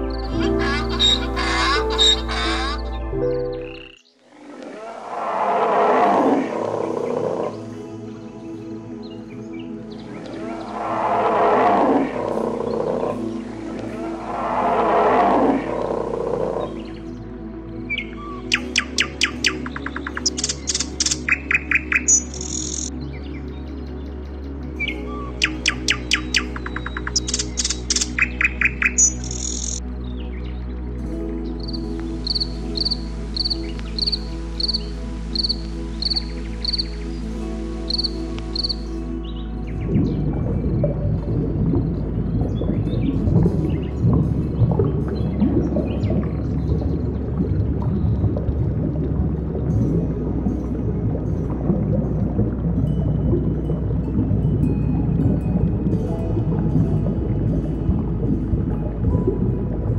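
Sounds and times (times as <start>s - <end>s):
background music: 0.0s - 59.9s
insect chirping: 17.9s - 22.9s, 25.4s - 29.8s, 31.5s - 40.0s.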